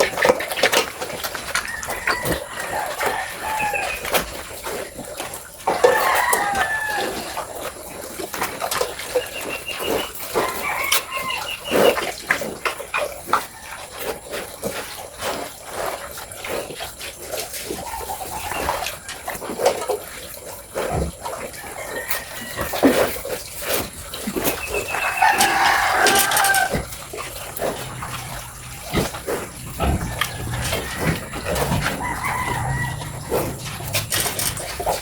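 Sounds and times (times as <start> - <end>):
chickens calling: 0.0 - 7.6, 8.7 - 12.2, 17.6 - 19.5, 20.7 - 35.0
rooster crowing: 1.6 - 4.2, 5.7 - 7.4, 10.3 - 11.6, 21.6 - 22.9, 24.7 - 27.0, 29.6 - 35.0.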